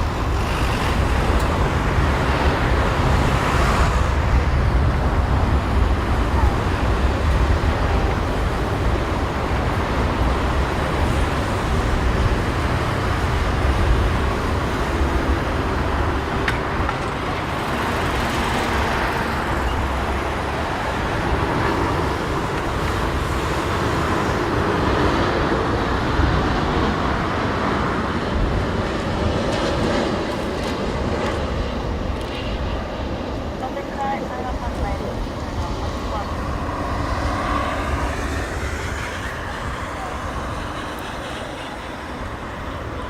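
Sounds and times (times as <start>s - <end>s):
jet engine rush: 0.0s - 43.0s
wind rumbling on microphone: 0.0s - 43.0s.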